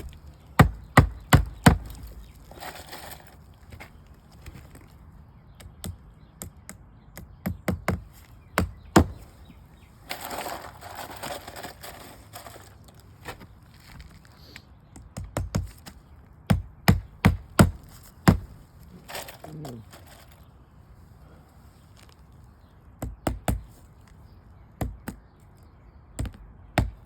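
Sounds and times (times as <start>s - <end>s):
hammer striking nails: 0.6s - 2.1s, 7.4s - 9.2s, 16.5s - 18.6s.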